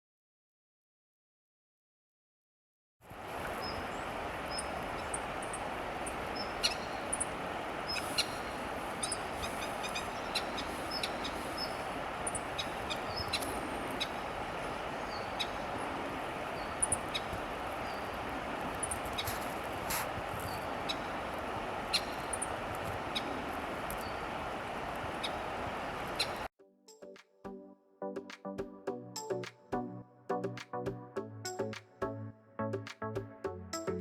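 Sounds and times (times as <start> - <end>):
kingfisher calling: 3.4 - 26.5.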